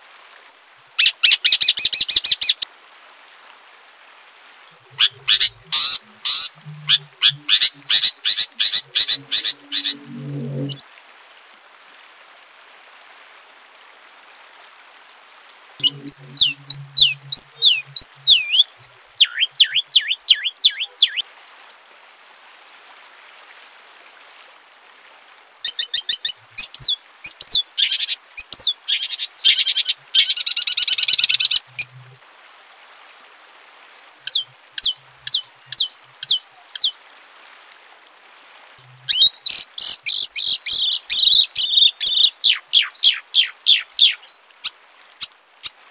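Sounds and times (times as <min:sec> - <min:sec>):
faint steady hiss: 0:00.0 - 0:45.9
songbird singing: 0:04.8 - 0:10.8, 0:15.8 - 0:21.2, 0:25.6 - 0:32.0, 0:34.2 - 0:37.0, 0:38.8 - 0:45.7.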